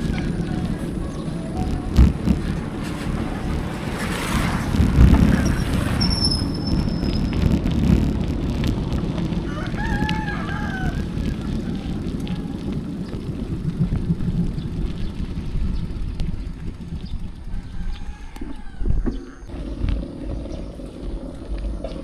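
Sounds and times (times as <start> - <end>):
wind rumble on microphone: 0.0 - 22.0
rooster crowing: 9.4 - 12.6, 17.4 - 19.5.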